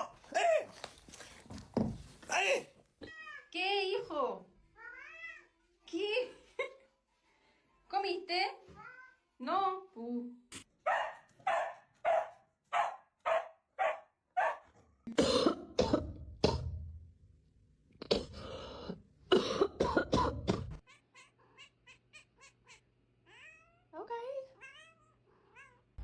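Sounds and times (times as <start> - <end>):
harsh cough-like animal sounds: 15.1 - 16.8, 19.3 - 20.9.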